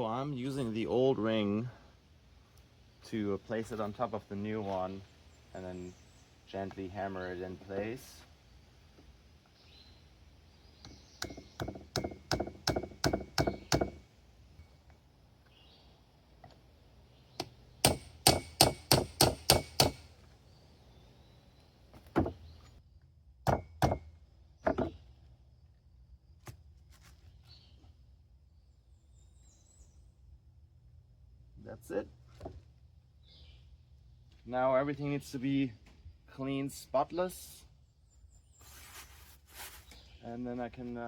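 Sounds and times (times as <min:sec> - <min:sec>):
hammer tapping on metal: 0:17.4 - 0:20.1.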